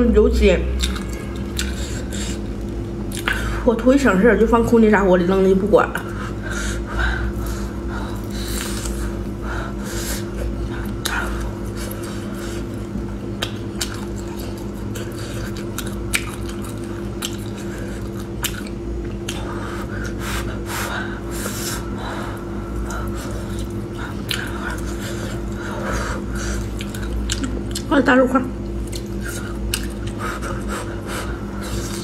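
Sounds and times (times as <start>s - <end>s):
low hum: 0.0s - 32.0s
chewing and wet mouth sounds: 0.7s - 3.6s, 7.3s - 32.0s
lip smacks and clicks: 13.4s - 14.8s, 15.6s - 19.5s.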